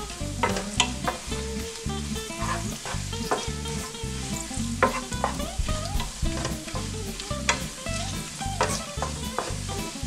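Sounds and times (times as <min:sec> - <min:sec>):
chile sizzling in hot oil: 0:00.0 - 0:10.0
soft background music: 0:00.0 - 0:10.0
wooden spoon scraping pan: 0:02.4 - 0:09.6.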